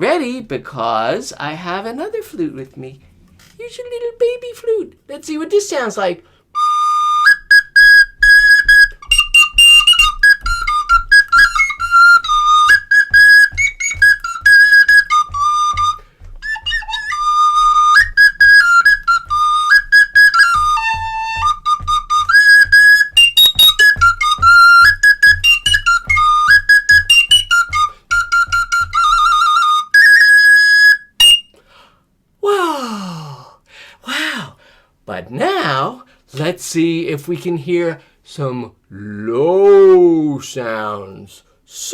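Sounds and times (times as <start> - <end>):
high-pitched flute playing tune: 6.6 - 31.6.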